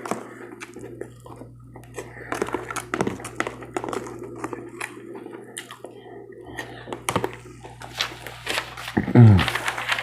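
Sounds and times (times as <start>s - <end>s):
chewing crunchy cereal: 0.0s - 10.0s.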